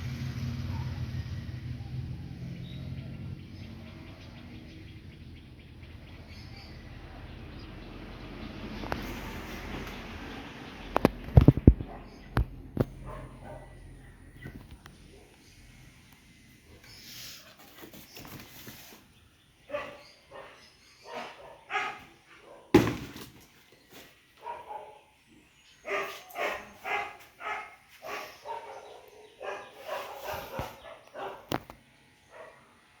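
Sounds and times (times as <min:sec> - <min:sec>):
dog barking: 0:00.5 - 0:01.1, 0:12.8 - 0:14.2, 0:19.7 - 0:22.8, 0:24.4 - 0:25.2, 0:25.8 - 0:32.8.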